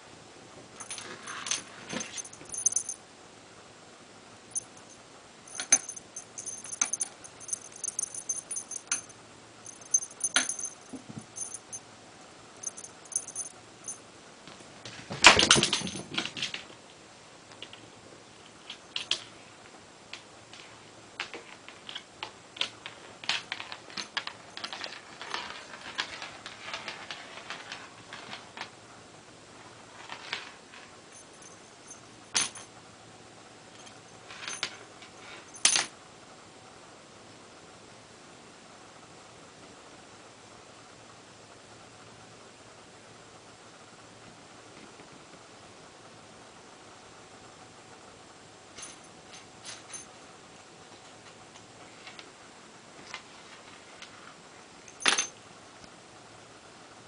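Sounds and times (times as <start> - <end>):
cat toy clicks and rustles: 0.8 - 3.0, 4.5 - 11.8, 20.6 - 28.7
rustling clatter: 0.8 - 3.0, 4.5 - 11.8, 12.6 - 14.0, 23.2 - 28.7
small bell jingling: 0.8 - 3.0, 4.5 - 11.8, 12.6 - 14.0, 31.1 - 32.6.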